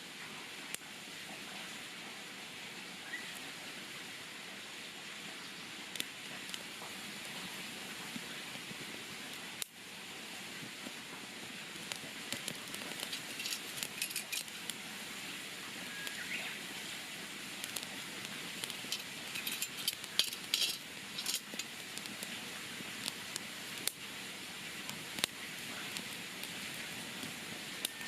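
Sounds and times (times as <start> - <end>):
campfire crackling and popping: 0.6 - 0.8, 5.9 - 28.0.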